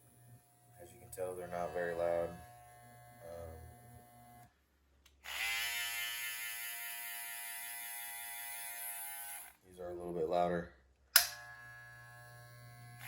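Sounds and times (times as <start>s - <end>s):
faint trimmer hum: 0.0s - 4.5s, 5.2s - 9.6s, 11.2s - 13.0s
hair trimmer buzzing: 0.0s - 4.5s, 5.2s - 9.6s, 11.2s - 13.0s
trimmer switch click: 11.2s - 11.4s.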